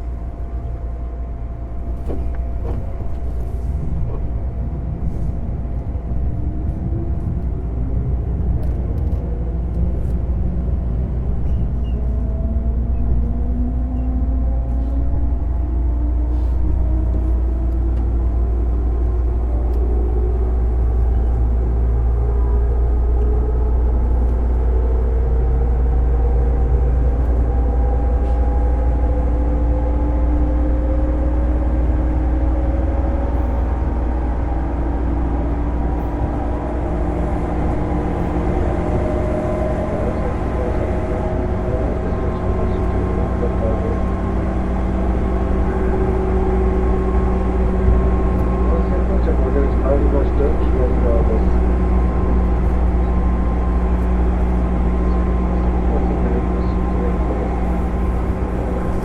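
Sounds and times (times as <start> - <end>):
heavy low rumble: 0.0 - 59.0.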